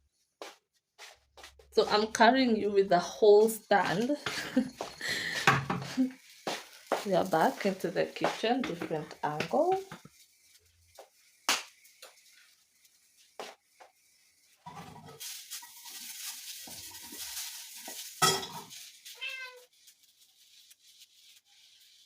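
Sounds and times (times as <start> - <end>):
utensils and pans clinking: 16.7 - 18.9
kitten meowing: 19.1 - 19.6.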